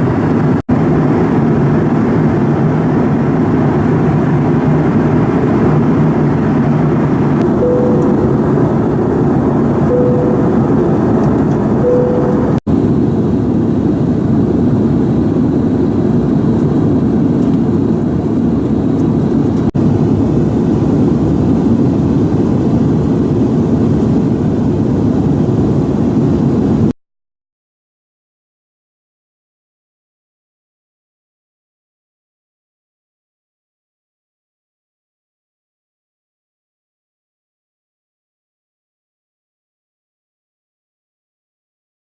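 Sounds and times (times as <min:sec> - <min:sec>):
airliner cabin noise: 0:04.8 - 0:13.0
short steady tones: 0:07.4 - 0:12.6.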